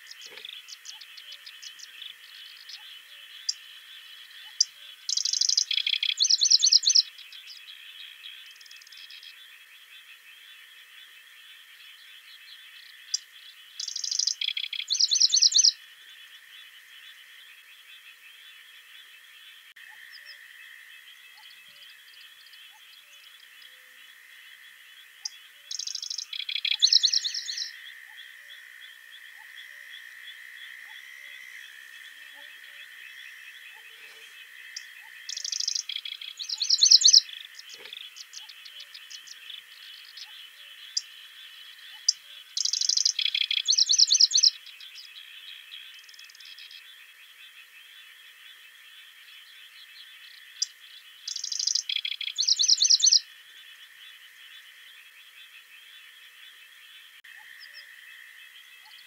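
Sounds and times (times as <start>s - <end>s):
chorus of calling animals: 0.0s - 59.0s
songbird singing rapid high notes: 4.4s - 7.1s, 13.8s - 15.8s, 25.7s - 27.7s, 34.8s - 39.3s, 42.0s - 44.6s, 51.3s - 53.2s.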